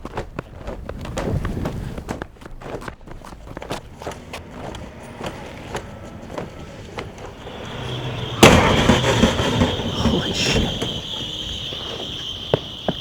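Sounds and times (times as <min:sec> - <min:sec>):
running footsteps on pavement: 0:00.0 - 0:13.0.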